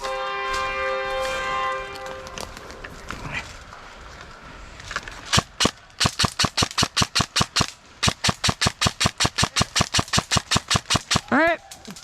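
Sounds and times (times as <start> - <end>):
airsoft gun shots: 5.3 - 11.4.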